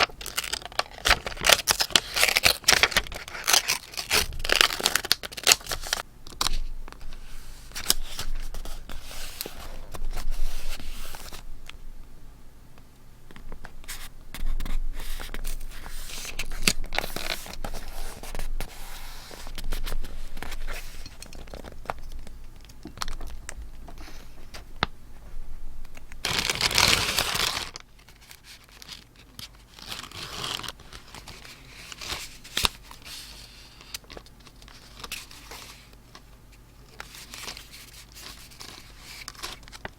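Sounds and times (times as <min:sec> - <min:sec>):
paper rustling: 0:00.0 - 0:11.4, 0:13.5 - 0:24.7, 0:26.2 - 0:36.0, 0:36.8 - 0:39.9
paper tearing: 0:26.2 - 0:27.8, 0:29.7 - 0:31.3.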